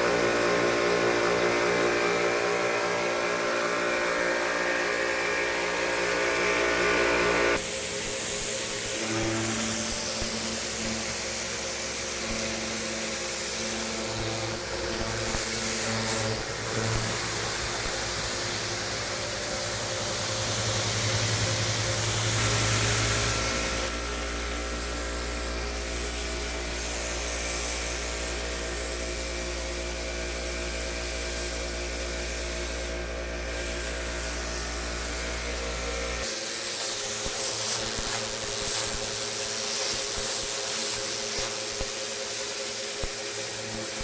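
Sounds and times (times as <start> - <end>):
pressure washer motor humming: 0.0 - 28.4.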